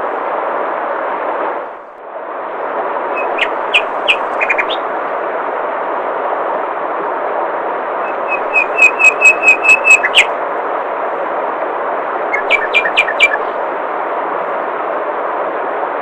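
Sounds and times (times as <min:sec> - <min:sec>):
songbird whistling: 0:03.2 - 0:04.8, 0:08.0 - 0:10.3, 0:12.3 - 0:13.5.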